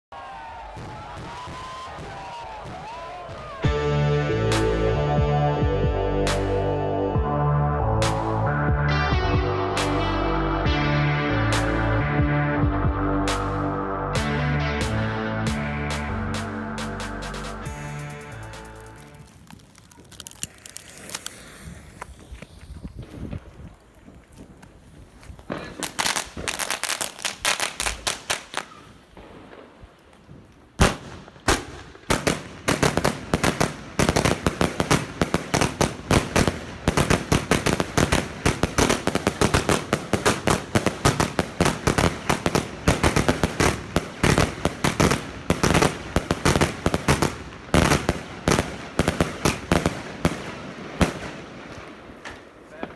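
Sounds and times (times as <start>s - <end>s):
firework cakes firing: 0.2s - 3.6s, 18.0s - 52.9s.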